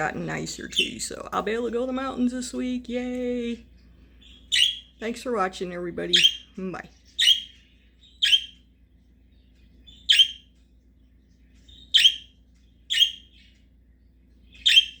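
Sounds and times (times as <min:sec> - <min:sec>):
budgerigar chirping: 0:04.2 - 0:08.7, 0:09.3 - 0:10.6, 0:11.6 - 0:13.7, 0:14.4 - 0:15.0.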